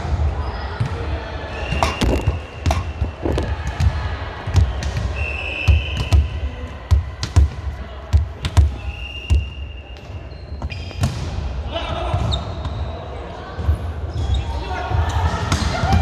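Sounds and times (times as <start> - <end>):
ball bouncing on gym floor: 1.8 - 3.7
sneakers squeaking on court: 1.8 - 3.7.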